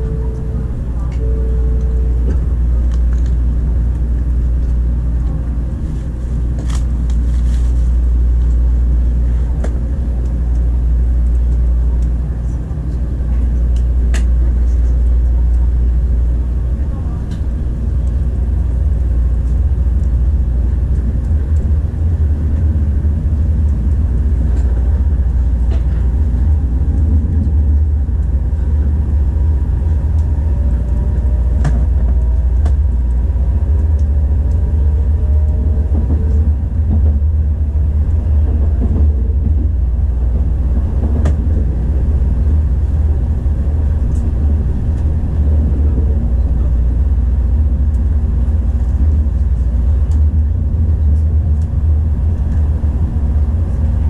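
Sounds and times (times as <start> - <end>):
train running rumble: 0.0 - 54.0.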